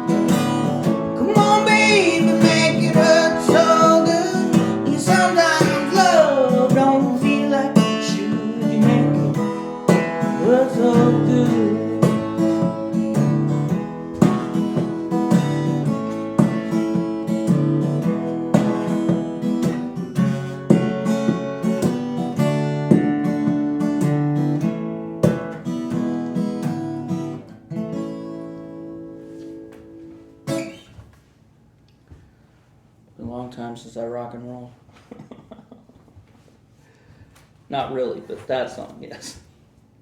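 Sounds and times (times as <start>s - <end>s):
acoustic guitar strumming: 0.0s - 31.1s
person singing: 1.1s - 12.9s.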